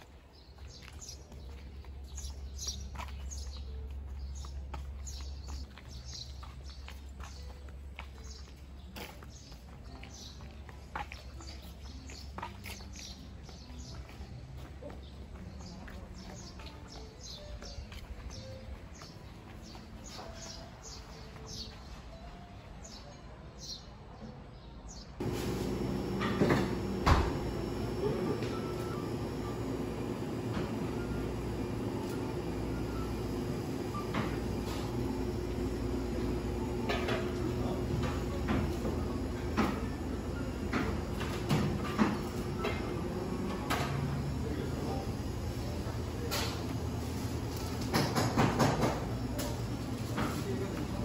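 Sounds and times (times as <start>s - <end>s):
small birds chirping: 0.0s - 23.9s
indoor hum: 25.2s - 51.0s.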